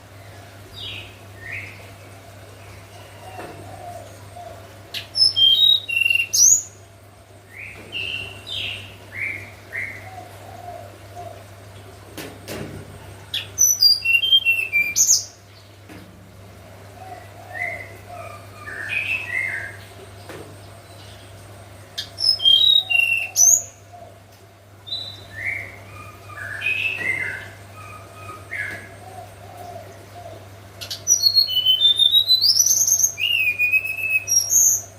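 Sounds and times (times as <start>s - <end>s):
bird singing whistled song: 5.2s - 6.7s, 13.6s - 15.3s, 22.2s - 23.6s, 24.9s - 25.8s, 31.0s - 34.9s.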